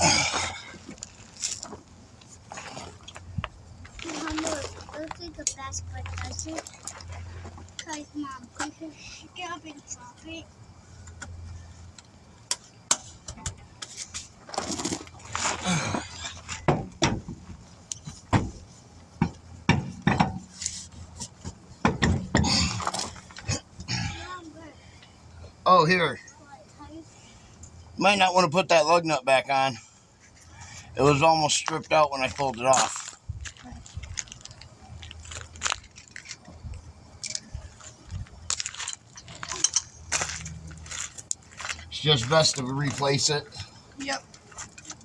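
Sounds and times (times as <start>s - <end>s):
wheel and tools clunking: 0.0s - 25.6s, 29.8s - 45.0s
metal tools clinking: 38.5s - 43.2s.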